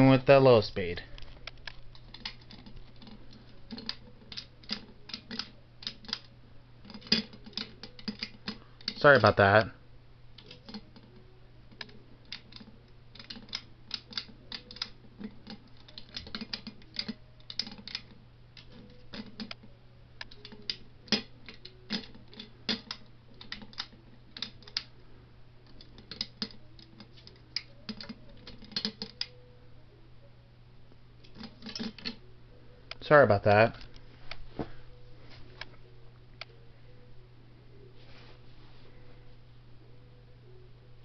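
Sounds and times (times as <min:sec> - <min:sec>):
ceiling fan motor hum: 0:00.0 - 0:41.0.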